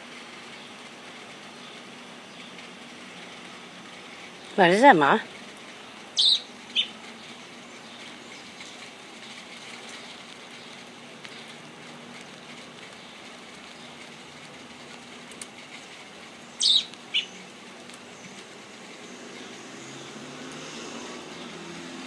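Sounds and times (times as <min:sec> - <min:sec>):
small bird sharp chirps: 0:06.2 - 0:07.0, 0:16.6 - 0:17.4.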